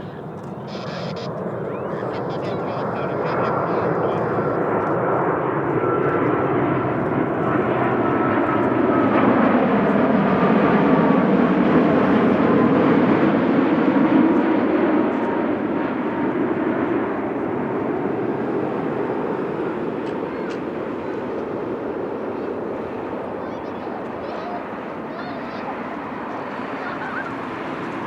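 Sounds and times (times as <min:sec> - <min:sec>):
jet airliner engine roar: 0:00.0 - 0:28.0
jet engine whine falling in pitch: 0:00.0 - 0:28.0.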